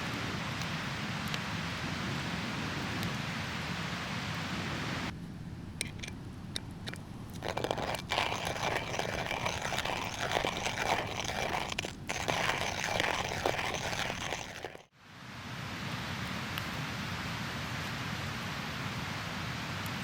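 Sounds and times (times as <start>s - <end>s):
hand coffee mill grinding beans: 5.6s - 14.9s.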